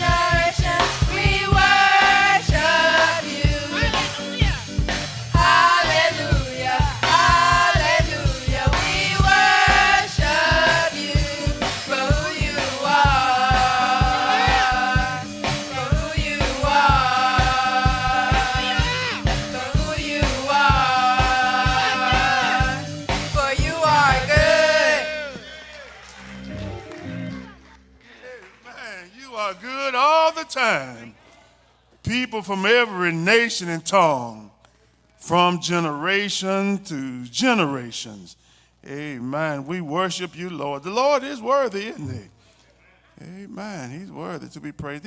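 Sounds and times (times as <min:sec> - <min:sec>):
drums keeping a beat: 0:00.0 - 0:25.5
singers singing: 0:00.0 - 0:25.8.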